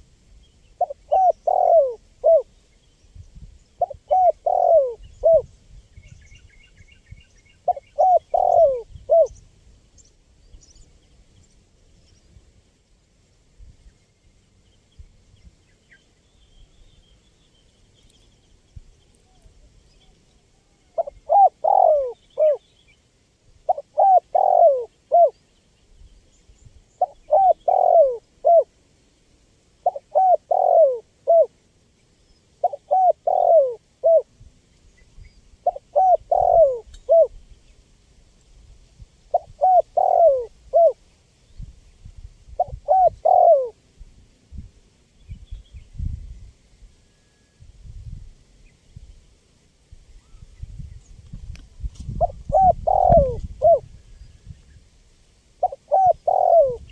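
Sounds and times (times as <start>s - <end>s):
dove cooing: 0.8s - 2.5s, 3.8s - 5.5s, 7.6s - 9.4s, 20.5s - 22.6s, 23.7s - 25.4s, 27.0s - 28.7s, 29.8s - 31.5s, 32.6s - 34.3s, 35.6s - 37.4s, 39.3s - 41.0s, 42.6s - 43.8s, 52.1s - 54.0s, 55.6s - 56.9s.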